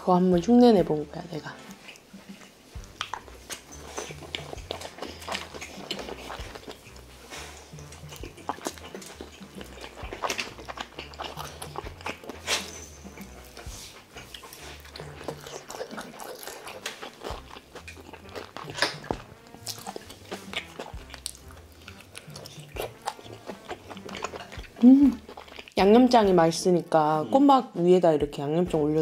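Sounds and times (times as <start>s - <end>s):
biting and chewing: 1.5s - 26.4s.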